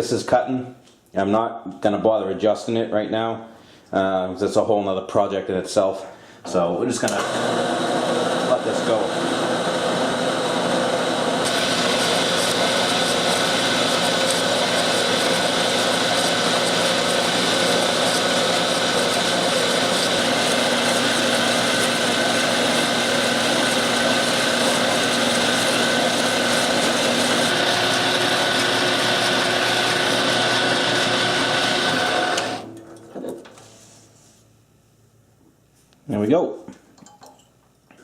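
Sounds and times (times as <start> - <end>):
power saw cutting metal bar: 11.4 - 32.8.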